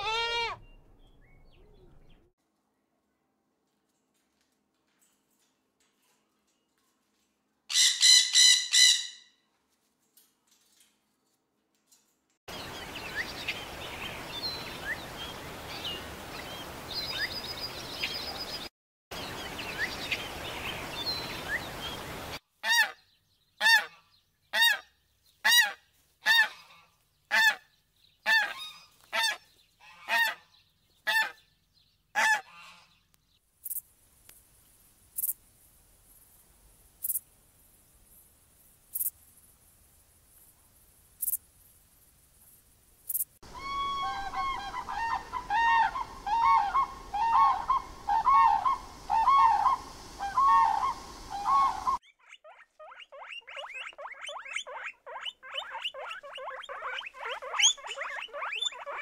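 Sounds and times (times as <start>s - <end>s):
birds chirping: 0.0s - 2.3s, 12.5s - 22.4s, 43.1s - 59.0s
outdoor hiss: 12.5s - 22.4s, 33.4s - 52.0s
loud bird calls: 43.5s - 59.0s
macaws squawking: 43.5s - 59.0s.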